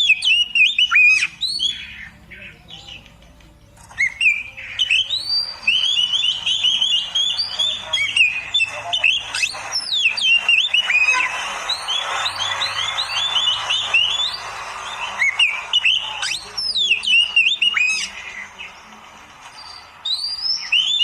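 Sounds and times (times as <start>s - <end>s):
songbird singing whistled phrases: 0.0s - 3.2s, 3.8s - 18.8s, 19.5s - 21.0s.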